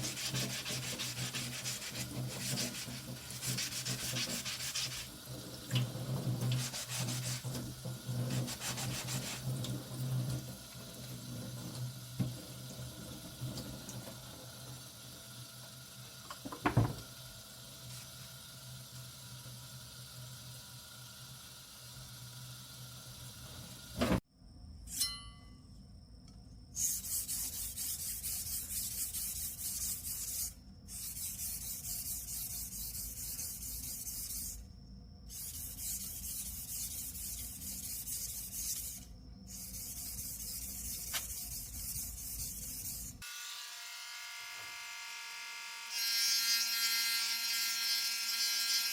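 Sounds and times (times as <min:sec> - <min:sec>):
knock: 0:16.4 - 0:17.0
abrasive rubbing on knife blade: 0:26.8 - 0:34.6, 0:35.3 - 0:43.2.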